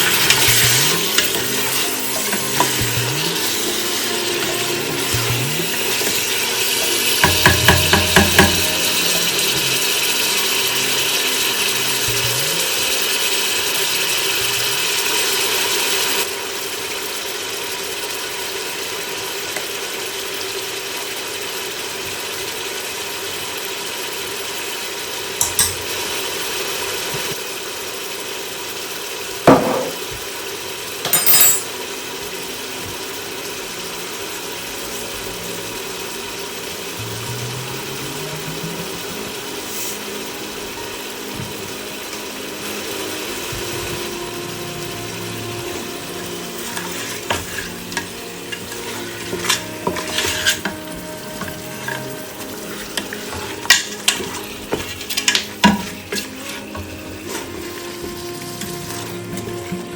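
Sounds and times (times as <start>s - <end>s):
utensil stirring: 0.0s - 16.3s, 34.3s - 59.9s
food sizzling in a pan: 0.0s - 59.9s.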